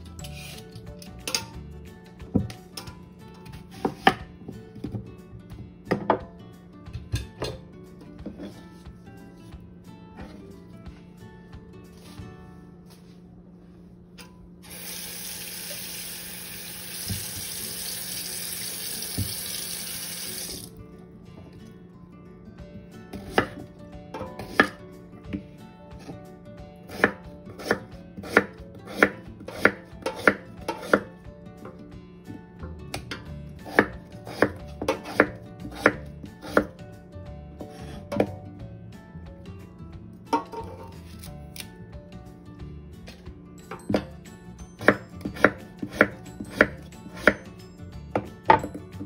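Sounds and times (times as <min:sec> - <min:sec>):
tap running into metal sink: 0:16.8 - 0:20.7
knife chopping on wooden board: 0:24.4 - 0:24.8, 0:26.9 - 0:31.1, 0:33.7 - 0:36.7, 0:44.8 - 0:47.4.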